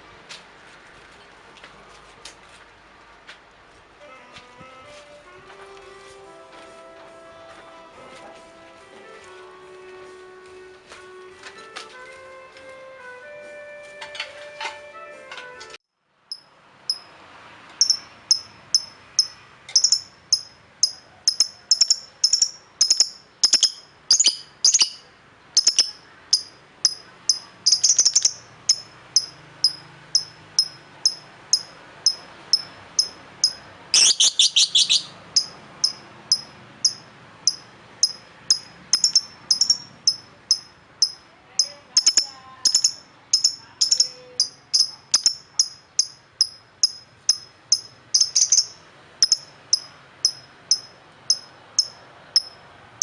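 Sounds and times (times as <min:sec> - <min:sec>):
small bird chirping: 0:17.7 - 0:52.6.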